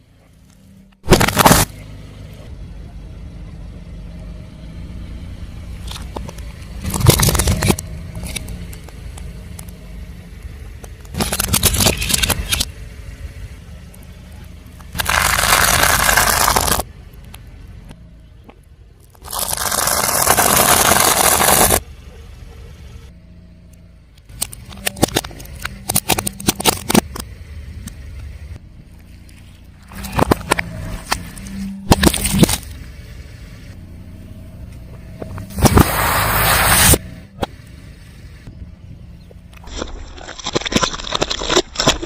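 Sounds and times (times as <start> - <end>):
car engine running: 0.0 - 40.2
tyre crushing crunchy objects: 1.0 - 1.8, 6.8 - 9.0, 11.0 - 12.7, 14.8 - 16.9, 19.1 - 21.8, 29.8 - 32.8, 39.6 - 42.0.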